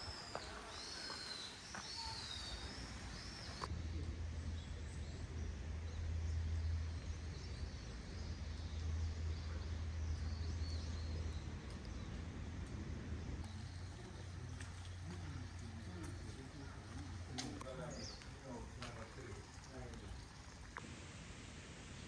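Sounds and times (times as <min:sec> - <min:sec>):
faint high bird chirps: 0:00.0 - 0:03.7
steady low rumble: 0:03.6 - 0:17.6.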